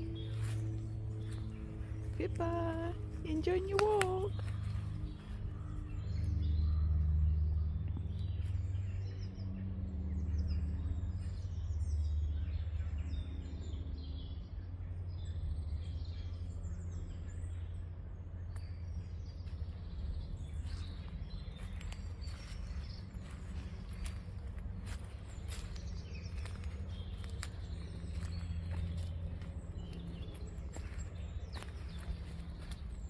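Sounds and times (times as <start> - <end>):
small birds chirping: 0.0 - 33.0
steady low rumble: 0.0 - 33.0.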